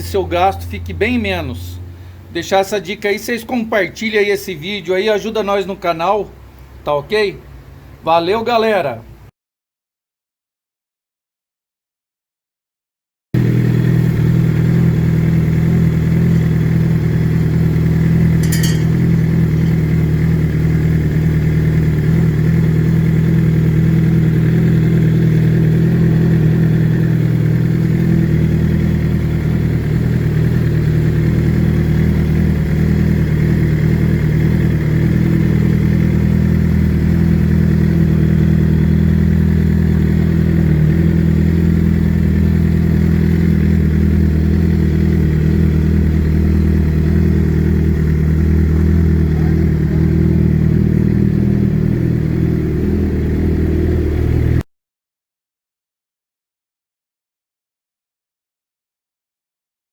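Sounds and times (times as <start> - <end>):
motorcycle engine running: 0.0 - 2.3, 13.4 - 54.6.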